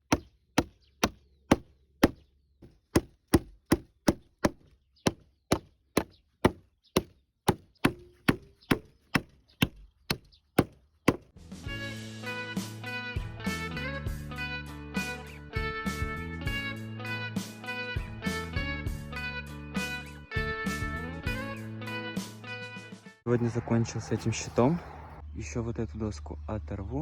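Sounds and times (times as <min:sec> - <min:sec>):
hammer driving nails into wood: 0:00.0 - 0:11.3.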